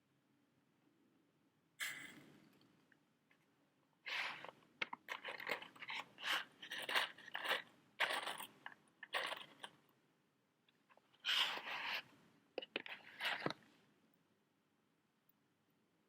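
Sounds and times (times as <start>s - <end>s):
matches and box scratching: 4.1s - 9.7s, 11.2s - 13.6s.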